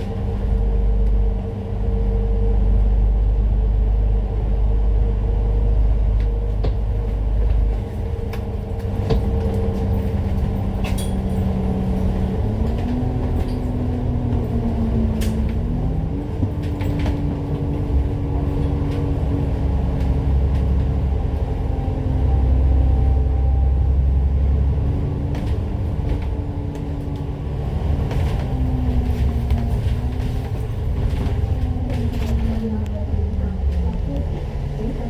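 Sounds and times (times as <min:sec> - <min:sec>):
bus engine droning: 0:00.0 - 0:35.0
rattles and clicks: 0:06.1 - 0:21.5, 0:25.3 - 0:35.0.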